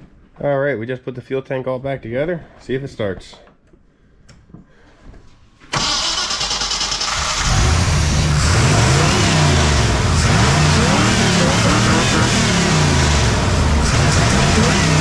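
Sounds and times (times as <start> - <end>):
engine revving: 5.8 - 15.0.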